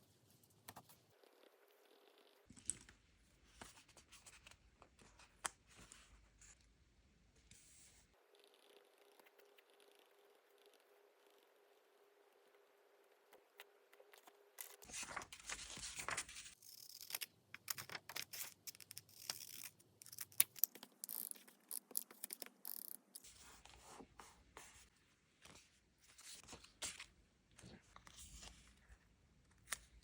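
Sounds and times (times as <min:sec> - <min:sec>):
paper rustling: 0:14.6 - 0:16.6.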